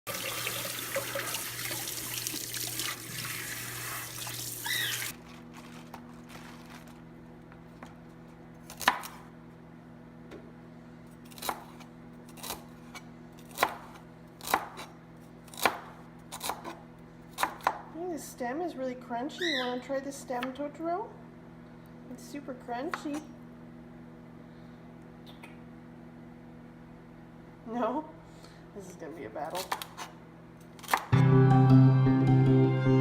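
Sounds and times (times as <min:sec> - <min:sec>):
tap water running into sink: 0:00.1 - 0:05.1
knife chopping on cutting board: 0:13.5 - 0:14.9.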